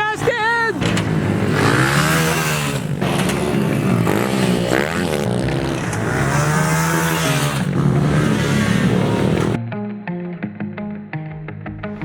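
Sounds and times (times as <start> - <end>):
pit bike engines revving: 0.0 - 9.6.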